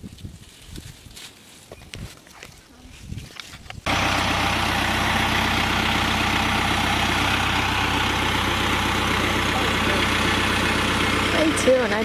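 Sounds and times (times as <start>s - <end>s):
tractor engine idling: 3.9s - 12.0s.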